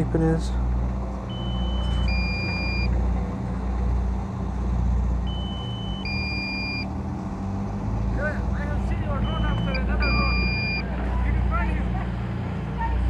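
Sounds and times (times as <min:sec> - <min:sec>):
remote controller warning beeps: 0:01.3 - 0:03.0, 0:05.3 - 0:06.9, 0:09.1 - 0:10.9.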